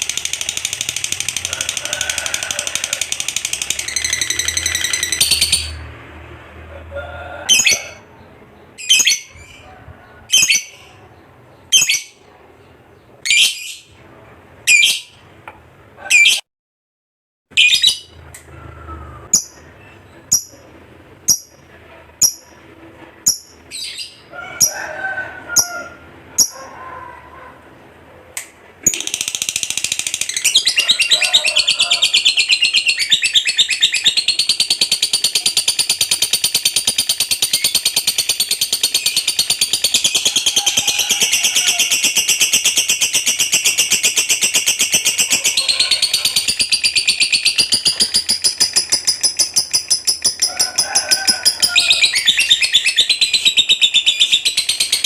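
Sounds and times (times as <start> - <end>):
lovebird chattering trill: 2.4 - 5.8, 10.3 - 10.9, 11.7 - 12.2, 20.3 - 20.6, 26.4 - 26.6, 28.8 - 55.0
lovebird chirping: 3.1 - 5.9, 7.5 - 13.9, 14.7 - 15.2, 17.6 - 18.2, 19.2 - 20.6, 26.4 - 26.6, 28.8 - 50.8, 51.4 - 55.0.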